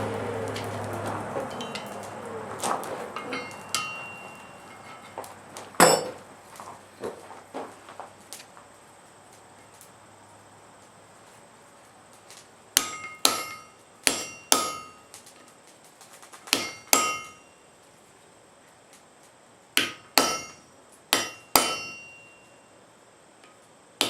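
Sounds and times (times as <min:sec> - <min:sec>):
hammer striking iron on anvil: 0:01.4 - 0:06.2, 0:12.8 - 0:15.1, 0:16.5 - 0:17.6, 0:19.8 - 0:22.6.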